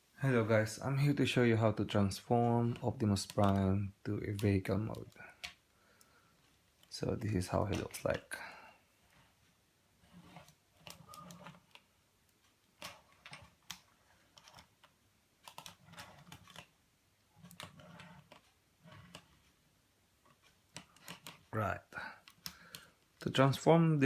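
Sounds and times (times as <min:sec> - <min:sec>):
plastic toy clicking and tapping: 0:02.4 - 0:05.6, 0:20.3 - 0:21.5, 0:22.2 - 0:22.9.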